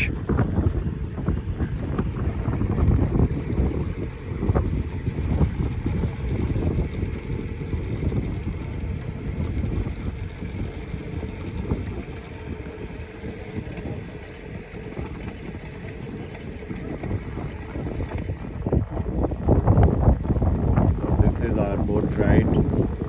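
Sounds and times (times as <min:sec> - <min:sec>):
motorboat running: 0:00.0 - 0:23.0
wind buffeting microphone: 0:00.0 - 0:23.0.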